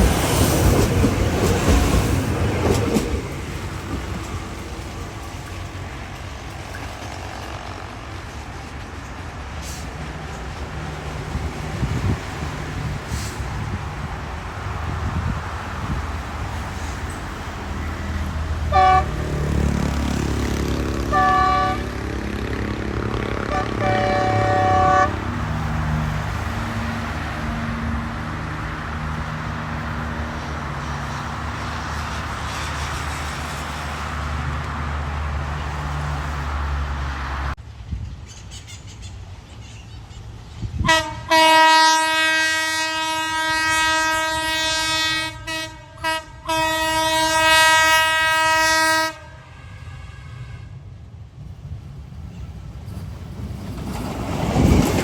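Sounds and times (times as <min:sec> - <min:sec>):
train engine rumbling: 0:00.0 - 0:55.0
train horn: 0:18.6 - 0:26.0, 0:40.8 - 0:51.0.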